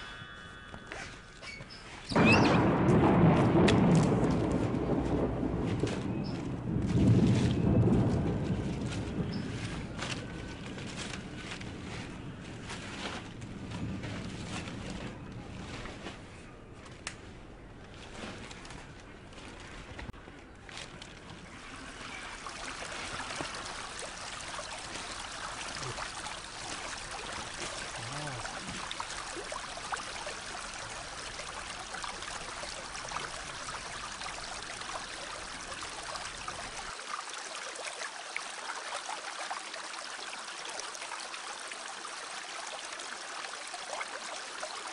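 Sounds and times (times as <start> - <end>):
water sloshing and splashing: 1.0 - 44.9
stream rushing: 20.8 - 44.9.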